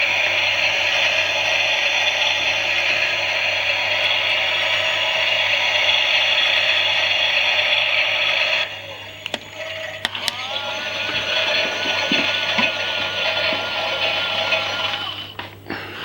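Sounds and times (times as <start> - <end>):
toy washing machine motor whirring: 0.0 - 15.5.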